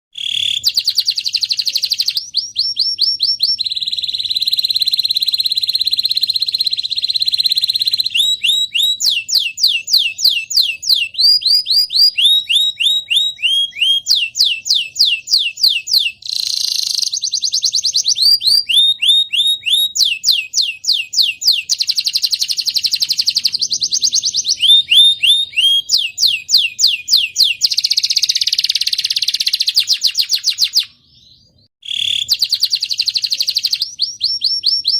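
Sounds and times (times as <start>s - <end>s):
canary singing: 0.1s - 34.9s.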